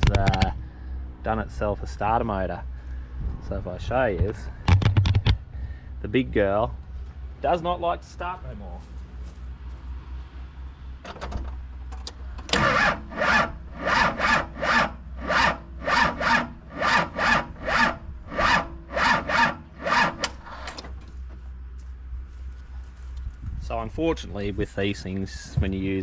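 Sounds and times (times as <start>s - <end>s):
starter motor cranking engine: 12.0s - 21.0s.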